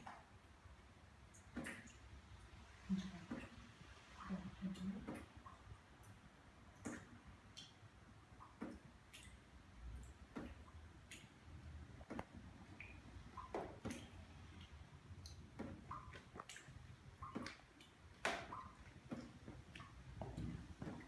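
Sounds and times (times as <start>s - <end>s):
water dripping: 0.0s - 21.0s.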